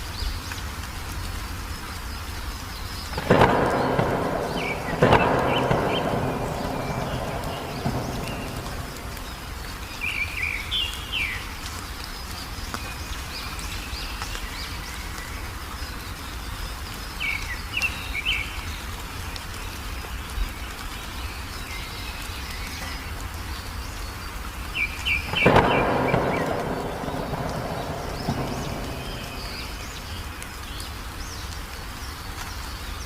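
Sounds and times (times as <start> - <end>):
songbird chirping: 1.8 - 33.0
low background rumble: 3.0 - 10.4, 25.3 - 30.8.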